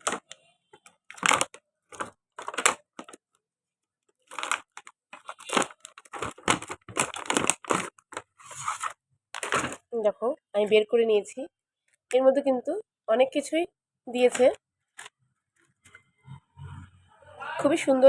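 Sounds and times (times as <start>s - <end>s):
packaging crinkling and tearing: 0.0s - 3.3s, 4.2s - 9.9s.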